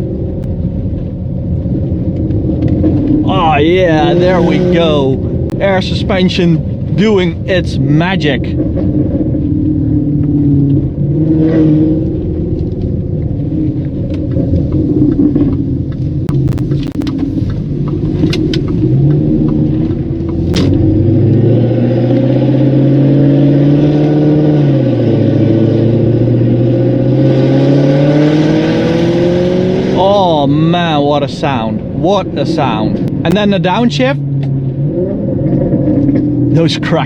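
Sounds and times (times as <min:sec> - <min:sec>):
loud engine revving: 0:03.2 - 0:12.4, 0:18.8 - 0:37.0.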